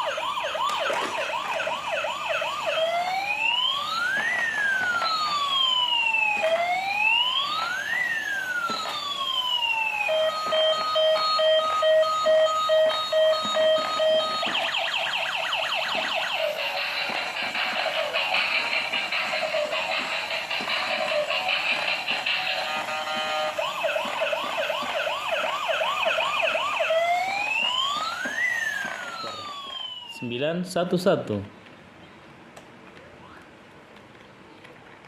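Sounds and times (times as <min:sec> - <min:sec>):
toy electronic siren: 0:00.0 - 0:30.2
steady beeping tone: 0:10.0 - 0:24.2.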